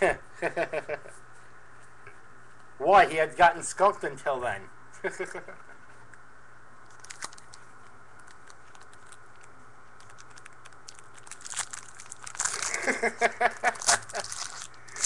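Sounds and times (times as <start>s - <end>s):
plastic wrapper crinkling: 6.9s - 15.0s.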